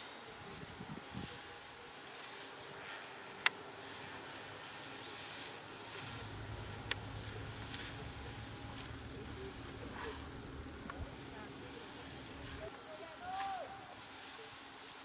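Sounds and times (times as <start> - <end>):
crickets chirring: 2.6 - 12.8
low rumble: 6.0 - 12.7.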